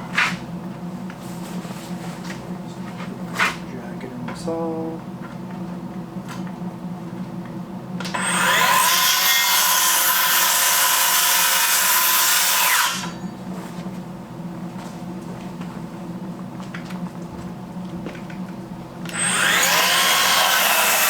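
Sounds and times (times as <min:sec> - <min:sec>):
power saw cutting wood: 0:08.2 - 0:13.2, 0:19.1 - 0:21.0.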